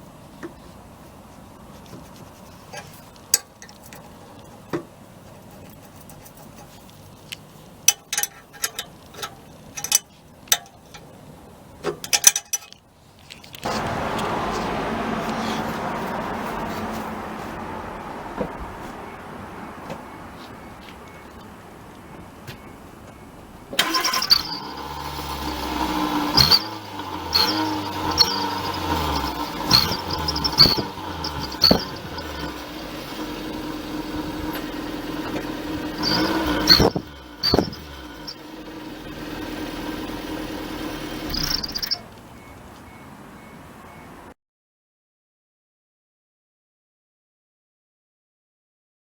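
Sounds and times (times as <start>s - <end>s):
car engine blipping: 13.6s - 44.3s
turbo whistle exhaust notes: 23.8s - 42.0s.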